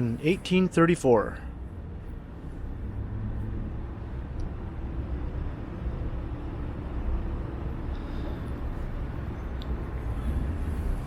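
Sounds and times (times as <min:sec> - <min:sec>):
city street traffic hum: 0:00.0 - 0:11.0
wind rumbling on microphone: 0:08.5 - 0:11.0.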